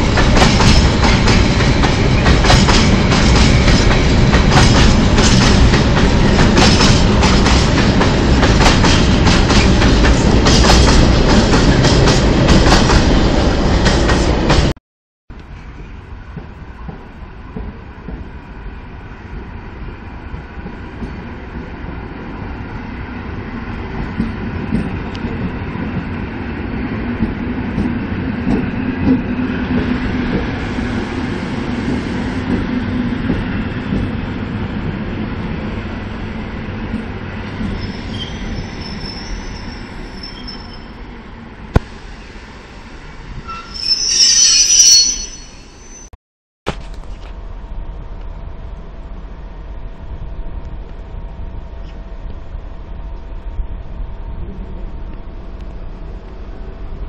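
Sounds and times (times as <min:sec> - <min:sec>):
electric train rumbling past: 0:00.0 - 0:14.7, 0:15.4 - 0:46.1, 0:47.2 - 0:57.0
loud high wheel squeal: 0:37.7 - 0:41.0, 0:43.4 - 0:46.1.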